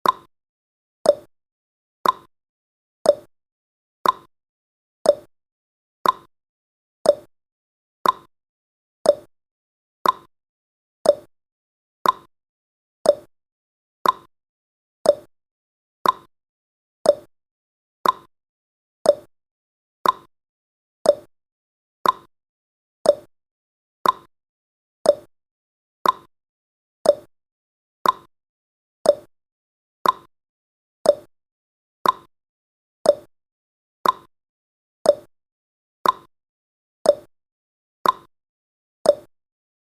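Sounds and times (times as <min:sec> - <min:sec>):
clock tick-tock: 0:00.0 - 0:00.3, 0:01.0 - 0:01.3, 0:02.0 - 0:02.3, 0:03.0 - 0:03.3, 0:04.0 - 0:04.3, 0:05.0 - 0:05.3, 0:06.0 - 0:06.3, 0:07.0 - 0:07.3, 0:08.0 - 0:08.3, 0:09.0 - 0:09.3, 0:10.0 - 0:10.3, 0:11.0 - 0:11.3, 0:12.0 - 0:12.3, 0:13.0 - 0:13.3, 0:14.0 - 0:14.3, 0:15.0 - 0:15.3, 0:16.0 - 0:16.3, 0:17.0 - 0:17.3, 0:18.0 - 0:18.3, 0:19.0 - 0:19.3, 0:20.0 - 0:20.3, 0:21.0 - 0:21.3, 0:22.0 - 0:22.3, 0:23.0 - 0:23.3, 0:24.0 - 0:24.3, 0:25.0 - 0:25.3, 0:26.0 - 0:26.3, 0:27.0 - 0:27.3, 0:28.0 - 0:28.3, 0:29.0 - 0:29.3, 0:30.0 - 0:30.3, 0:31.0 - 0:31.3, 0:32.0 - 0:32.3, 0:33.0 - 0:33.3, 0:34.0 - 0:34.3, 0:35.0 - 0:35.3, 0:36.0 - 0:36.3, 0:37.0 - 0:37.3, 0:38.0 - 0:38.3, 0:39.0 - 0:39.4.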